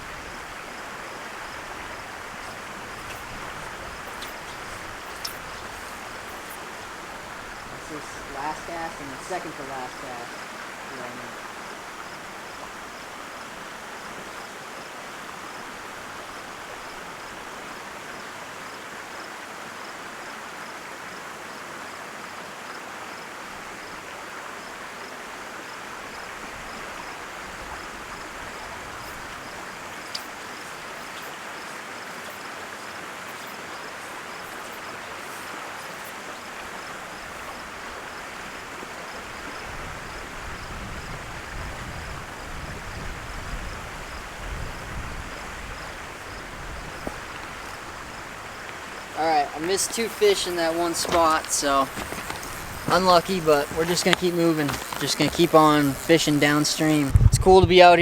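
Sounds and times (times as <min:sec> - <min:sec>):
stream rushing: 0:00.0 - 0:58.0
light clicks: 0:03.0 - 0:06.6.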